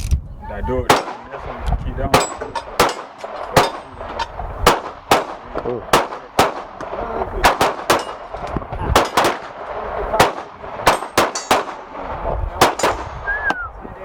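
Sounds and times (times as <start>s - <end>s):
gunshots: 0.8s - 13.3s
metallic clang: 0.9s - 7.0s, 10.8s - 11.9s.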